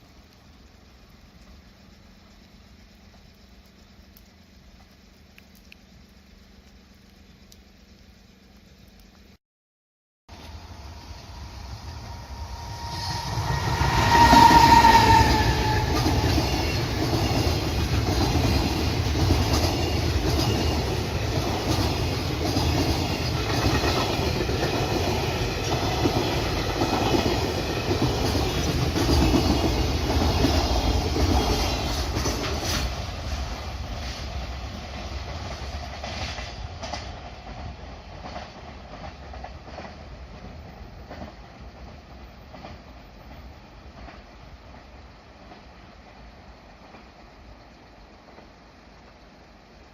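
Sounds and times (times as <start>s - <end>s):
freight train clacking over rail joints: 11.9s - 46.2s.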